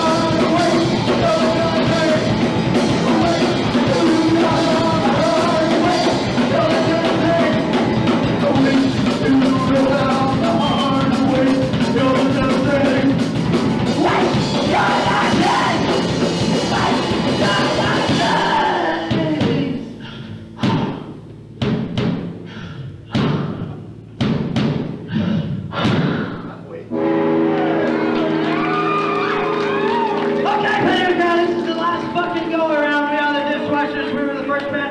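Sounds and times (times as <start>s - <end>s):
person singing: 0.0s - 20.9s
punk rock band playing: 0.0s - 25.1s, 26.9s - 34.9s
band stabbed hits: 23.1s - 26.6s.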